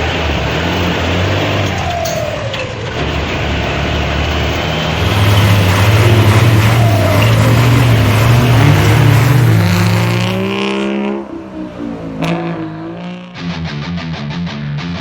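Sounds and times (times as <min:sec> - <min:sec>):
heavy vehicle engine: 0:00.0 - 0:12.4
falling whines: 0:05.0 - 0:10.6.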